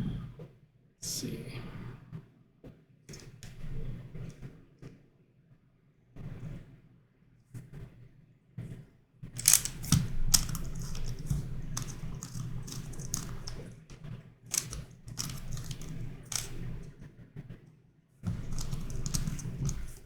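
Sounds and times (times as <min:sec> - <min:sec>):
plastic puzzle clicking: 0:09.4 - 0:13.9, 0:14.5 - 0:16.9, 0:18.3 - 0:20.0.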